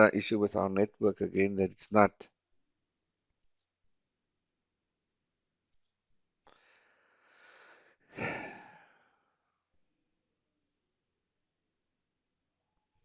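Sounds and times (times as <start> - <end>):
man sighing: 7.5 - 9.2.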